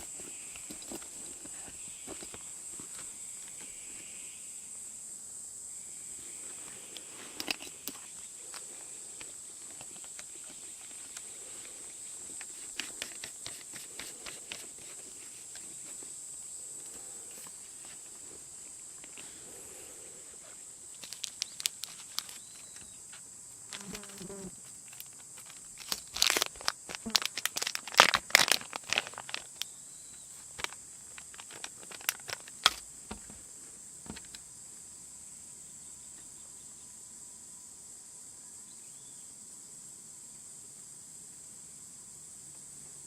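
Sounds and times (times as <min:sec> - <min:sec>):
crinkling crackling clicks: 0:20.9 - 0:23.0, 0:23.7 - 0:29.7, 0:30.5 - 0:32.8.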